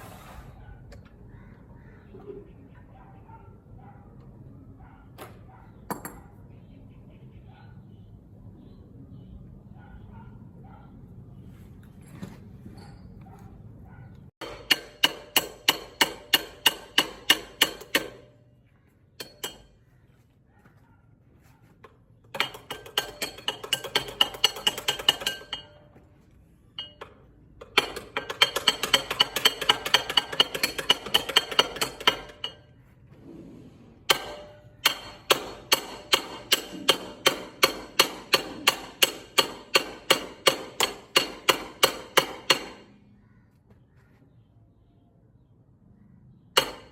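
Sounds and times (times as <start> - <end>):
hammer ringing on metal: 34.1 - 42.9.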